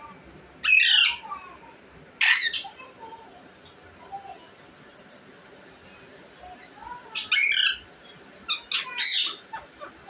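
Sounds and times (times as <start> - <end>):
soft parrot chatter: 0.0 - 10.0
parrot squawk: 0.6 - 1.2, 2.2 - 2.8, 7.2 - 7.8, 8.5 - 10.0
parrot chirps: 2.2 - 2.8, 7.1 - 7.8, 8.5 - 10.0.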